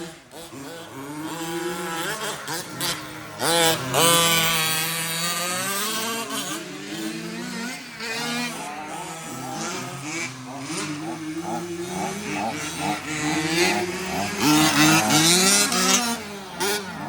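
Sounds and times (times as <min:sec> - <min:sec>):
remote-control truck motors whining: 0:00.0 - 0:17.0.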